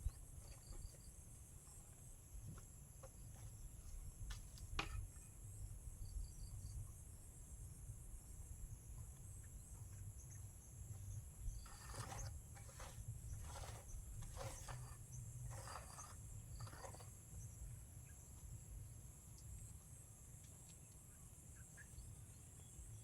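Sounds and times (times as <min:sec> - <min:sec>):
short noisy handwork sounds: 0:11.6 - 0:17.1.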